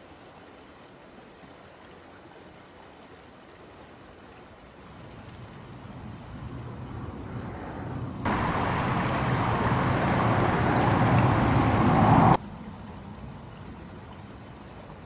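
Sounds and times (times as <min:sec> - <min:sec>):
faint rushing background: 0:06.1 - 0:12.4
loud rushing noise: 0:08.3 - 0:12.4.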